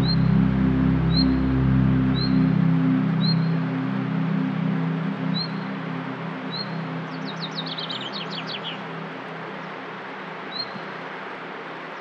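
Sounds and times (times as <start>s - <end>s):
bird upward chirp: 5.1s - 5.8s, 6.4s - 8.8s.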